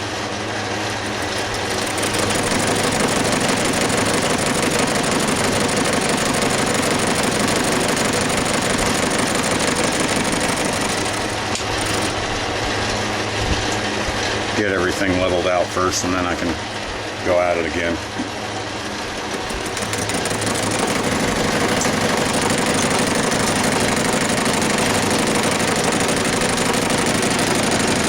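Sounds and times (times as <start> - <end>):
belt-driven lathe running: 0.8 - 12.4, 19.2 - 28.0.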